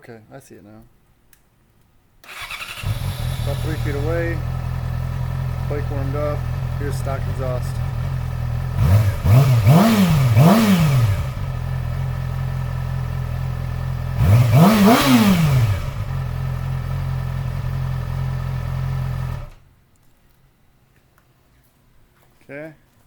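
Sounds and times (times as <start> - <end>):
motorcycle engine idling and revving: 2.3 - 19.6.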